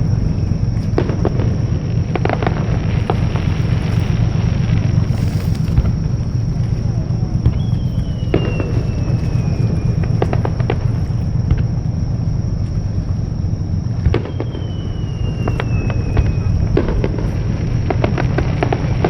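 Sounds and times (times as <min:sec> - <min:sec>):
low rumble: 0:00.0 - 0:19.0
firework shells bursting: 0:00.6 - 0:11.8, 0:14.0 - 0:19.0
falling whistle: 0:06.7 - 0:11.2, 0:14.1 - 0:16.8.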